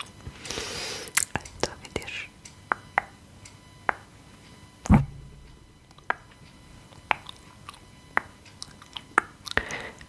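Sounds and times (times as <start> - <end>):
dull thump: 4.9 - 6.0.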